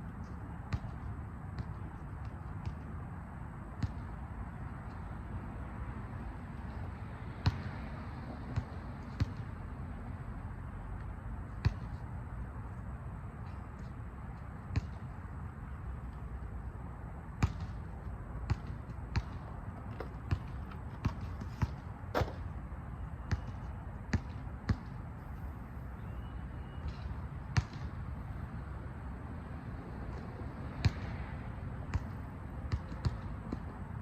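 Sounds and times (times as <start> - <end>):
basketballs bouncing on a court: 0.5 - 3.0, 3.8 - 4.2, 7.3 - 9.6, 11.6 - 12.0, 14.7 - 15.1, 17.4 - 22.5, 23.2 - 25.0, 26.8 - 27.9, 30.1 - 33.9.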